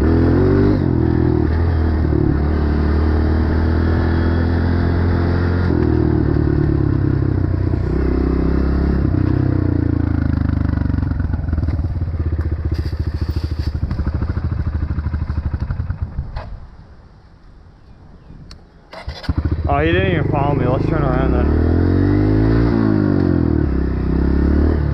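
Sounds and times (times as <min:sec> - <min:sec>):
dirt bike engine running: 0:00.0 - 0:16.4.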